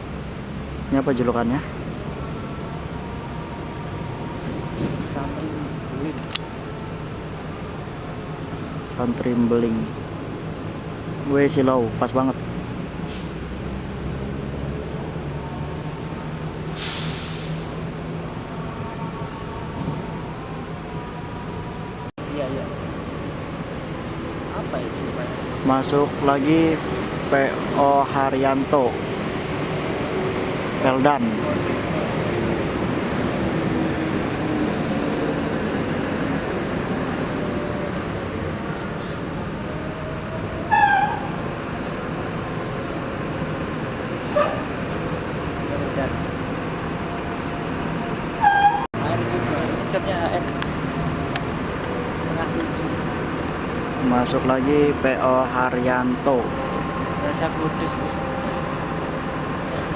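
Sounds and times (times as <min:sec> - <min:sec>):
bus engine running: 0:00.0 - 0:59.9
traffic: 0:00.0 - 0:59.9
air-brake hiss: 0:13.0 - 0:13.5, 0:16.7 - 0:17.9.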